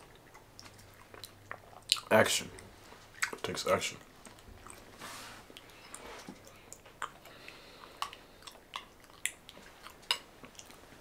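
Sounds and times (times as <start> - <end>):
person chewing food: 0.0 - 11.0
sharp mouth clicks: 5.6 - 10.8.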